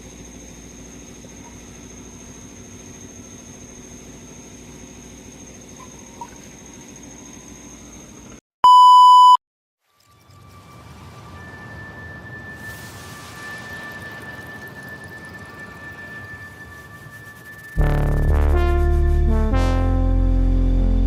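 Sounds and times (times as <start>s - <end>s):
electronic beep: 8.6s - 9.4s
high-pitched whine: 10.2s - 21.0s.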